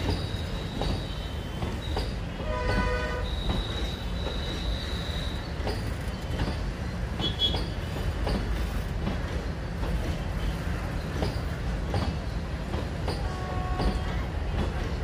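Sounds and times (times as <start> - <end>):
train wheels rumbling on rails: 0.0 - 15.0
wheels clacking over rail joints: 0.0 - 15.0
high wheel squeal: 3.2 - 6.3.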